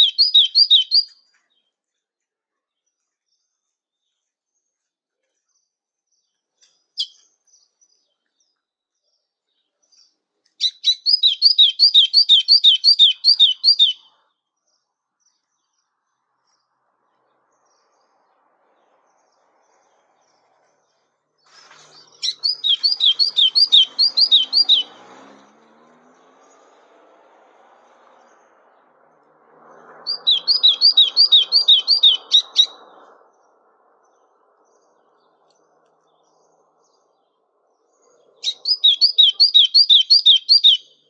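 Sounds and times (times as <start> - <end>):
songbird singing high notes: 0.0 - 1.2, 10.6 - 14.1, 22.0 - 25.1, 30.1 - 33.0, 38.4 - 41.0.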